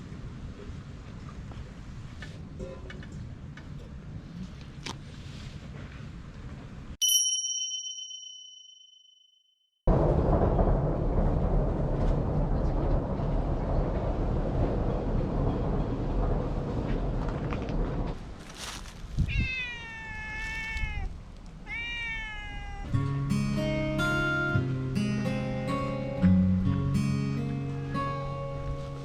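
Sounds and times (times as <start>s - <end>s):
low rumbling noise: 9.9s - 18.4s
cat meowing: 19.3s - 23.0s
acoustic guitar music: 22.9s - 29.0s.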